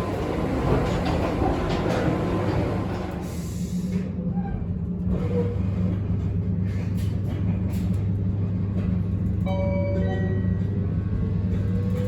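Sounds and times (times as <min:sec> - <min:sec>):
electric train running: 0:00.0 - 0:03.6.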